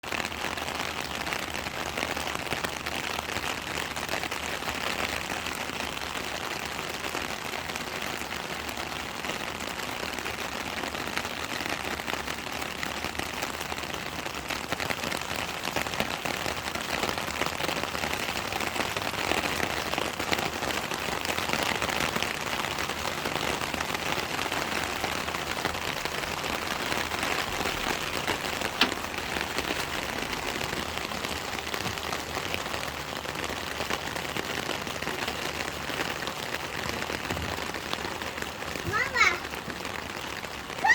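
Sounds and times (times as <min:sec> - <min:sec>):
steady rain patter: 0:00.0 - 0:40.9.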